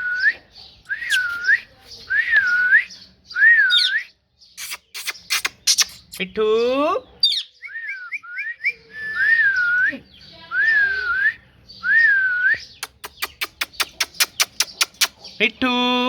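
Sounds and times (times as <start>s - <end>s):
person whistling: 0.0s - 1.6s
rapid sharp clicks: 12.8s - 15.1s.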